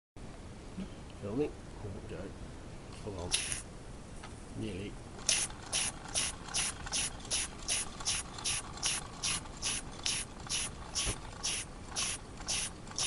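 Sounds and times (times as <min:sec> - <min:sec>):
steam leaking: 0:03.3 - 0:03.6, 0:05.2 - 0:13.0
model steam engine chuffing: 0:05.2 - 0:13.0.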